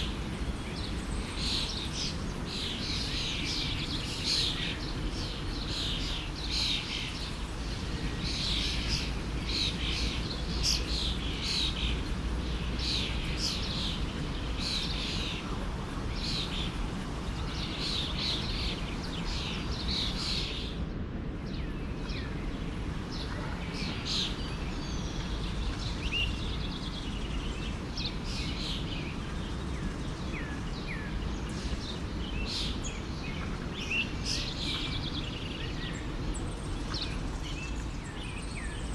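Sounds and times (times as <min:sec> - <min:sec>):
forest stream rushing: 0:00.0 - 0:20.8, 0:21.5 - 0:38.9
birds chirping and singing: 0:08.2 - 0:20.7, 0:21.5 - 0:38.9.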